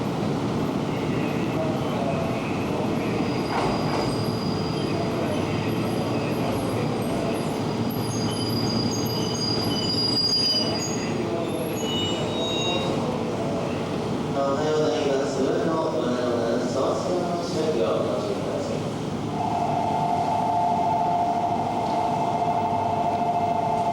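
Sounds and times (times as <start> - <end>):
electric train rumbling: 0.0 - 23.9
train wheel squeal: 3.0 - 13.2.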